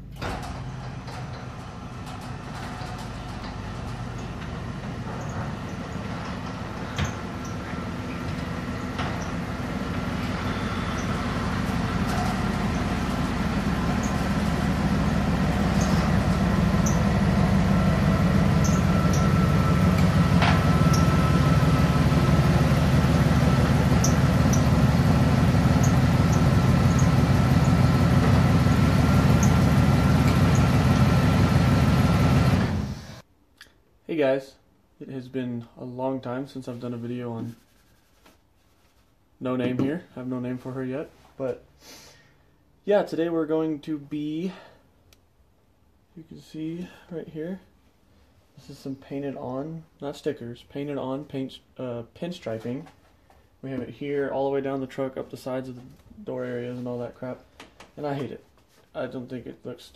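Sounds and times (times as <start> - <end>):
vehicle engine rumbling: 0.3 - 33.2.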